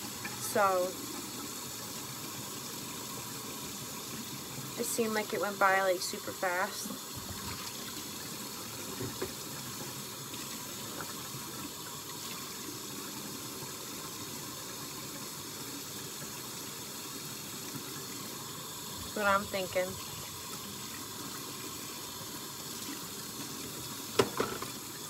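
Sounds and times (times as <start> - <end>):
dishes being washed: 0.0 - 1.6, 4.8 - 13.1, 18.9 - 25.0
faucet running into sink: 0.0 - 25.0.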